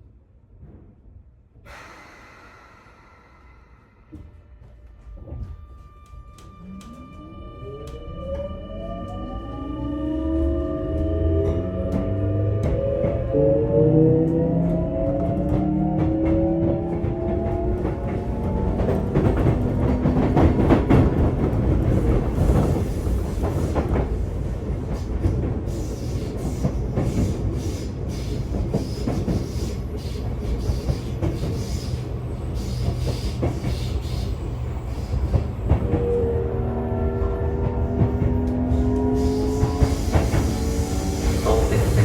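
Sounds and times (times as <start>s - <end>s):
train running noise: 0.5s - 42.0s.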